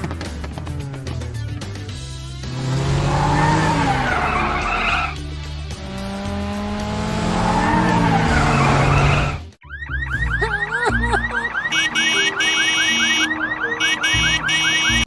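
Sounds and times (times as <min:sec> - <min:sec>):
background music: 0:00.0 - 0:15.0
tyres screeching: 0:02.6 - 0:05.2.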